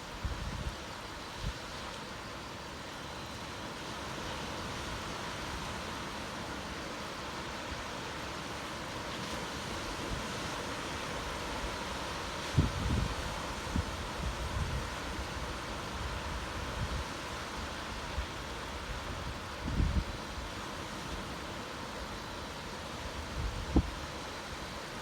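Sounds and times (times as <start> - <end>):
ocean surf breaking on beach: 3.4 - 25.0.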